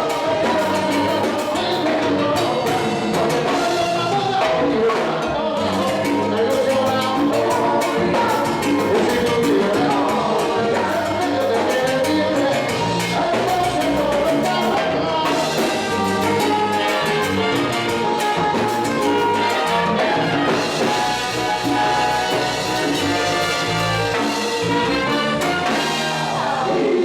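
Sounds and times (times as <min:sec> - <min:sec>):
salsa band playing: 0:00.0 - 0:27.0
trumpets: 0:15.3 - 0:27.0.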